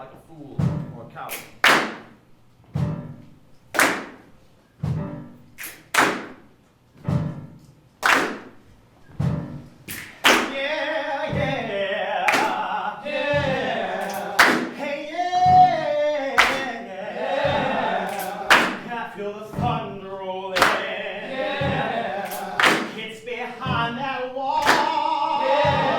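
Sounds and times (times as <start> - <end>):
heavy rhythmic thuds: 0.0 - 25.9
voices singing together: 10.0 - 25.9.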